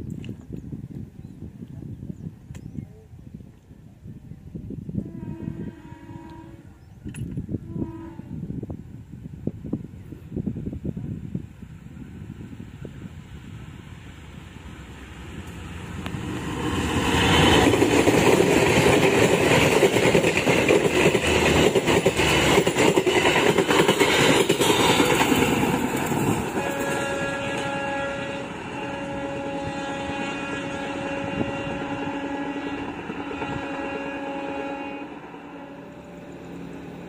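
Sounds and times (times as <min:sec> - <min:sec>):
train passing with rumble: 0:00.0 - 0:37.0
train horn blasts: 0:04.9 - 0:06.8, 0:07.6 - 0:08.6, 0:26.5 - 0:36.4
coach wheels clattering on rails: 0:16.8 - 0:27.0.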